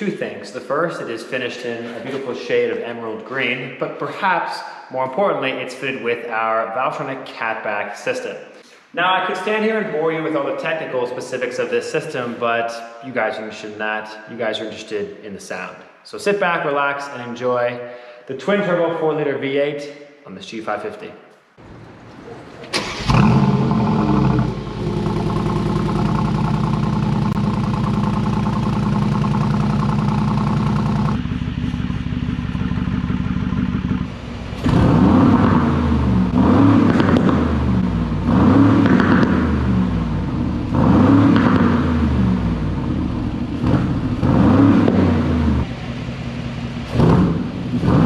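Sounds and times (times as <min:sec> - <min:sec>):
car engine idling and revving: 0:22.8 - 0:48.0.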